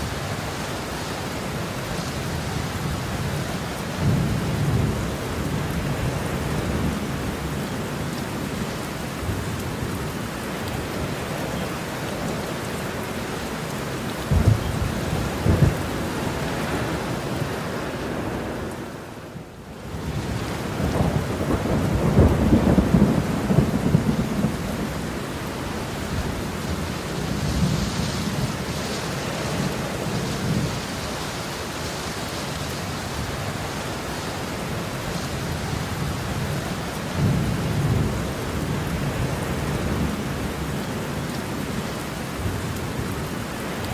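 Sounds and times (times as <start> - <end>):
heavy rain: 0.0 - 43.9
rolling rumble of thunder: 14.2 - 17.5, 20.0 - 28.8, 35.4 - 40.8
sharp thunderclaps: 14.3 - 16.9.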